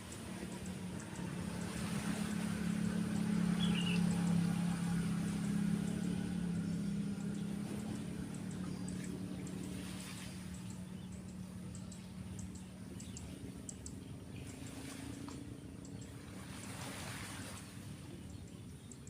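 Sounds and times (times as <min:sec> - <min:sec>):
waves washing: 0:00.0 - 0:13.7, 0:14.4 - 0:18.3
vehicle passing by: 0:00.0 - 0:18.5
bird chirp: 0:03.1 - 0:16.2, 0:18.1 - 0:19.0.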